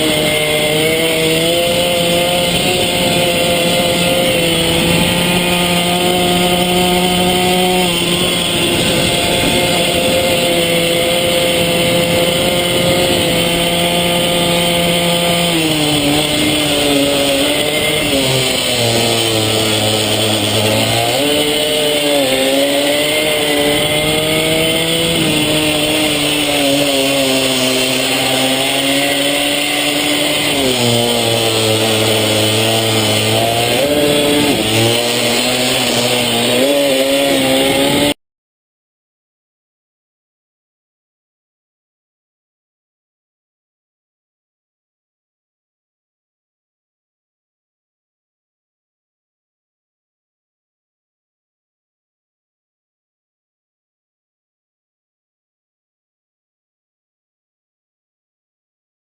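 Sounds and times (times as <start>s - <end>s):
mini-bike engine revving: 0.0s - 38.2s.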